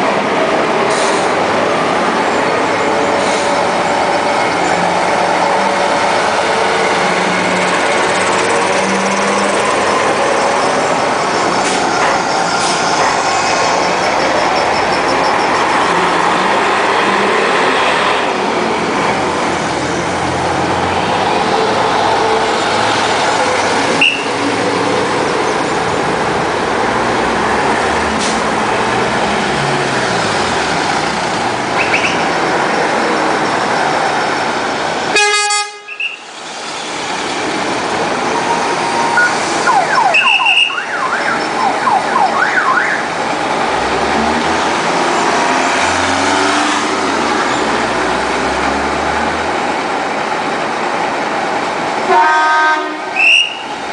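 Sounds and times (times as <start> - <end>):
trucks driving past: 0.0 - 53.9
truck horn: 35.1 - 36.3, 52.1 - 53.7.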